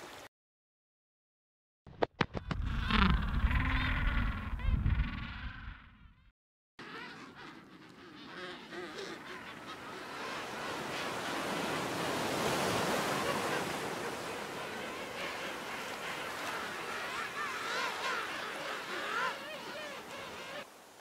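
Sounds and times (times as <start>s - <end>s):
penguin calls: 6.8s - 10.8s, 15.2s - 20.6s.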